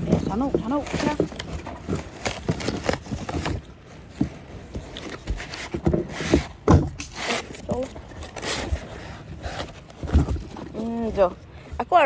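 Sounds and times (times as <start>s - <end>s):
packaging being handled: 0.0s - 11.7s.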